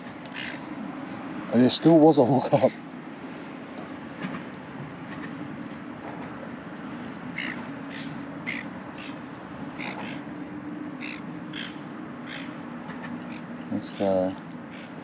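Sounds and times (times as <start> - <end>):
bird calling: 0.2 - 0.8, 6.8 - 15.0.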